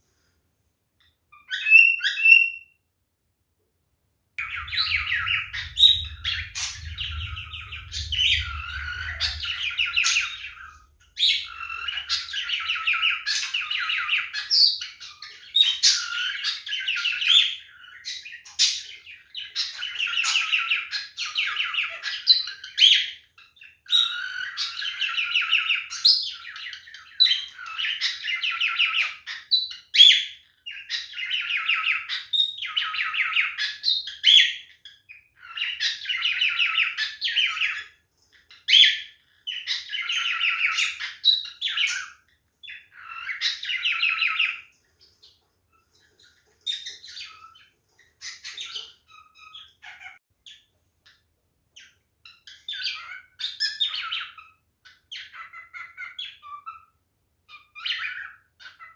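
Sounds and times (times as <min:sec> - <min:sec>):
cockatiel singing warbling song: 0:01.0 - 0:02.8, 0:04.4 - 0:58.9.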